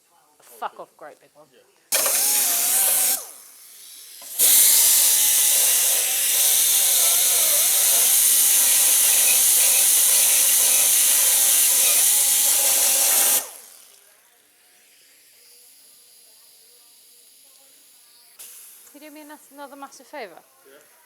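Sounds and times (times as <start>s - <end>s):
cut-off disc cutting steel: 1.9s - 14.0s.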